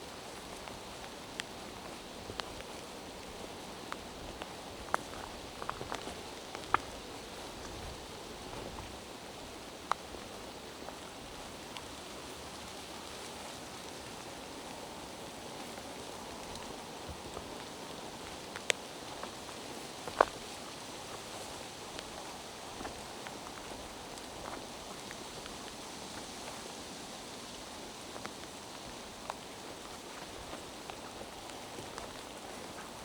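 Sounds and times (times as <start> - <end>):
steady rain hiss: 0.0 - 33.0
sharp taps of raindrops: 0.4 - 7.0.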